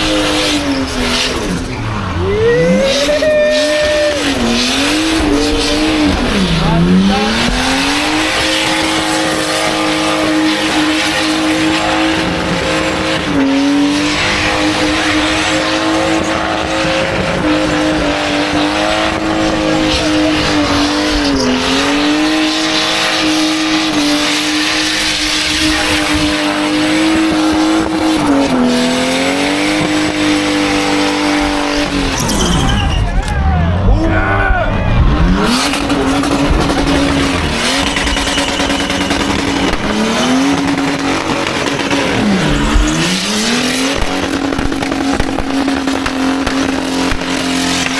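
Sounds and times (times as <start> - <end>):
car engine revving high: 0.0 - 47.9
tyres squealing: 1.5 - 11.0, 31.8 - 43.4.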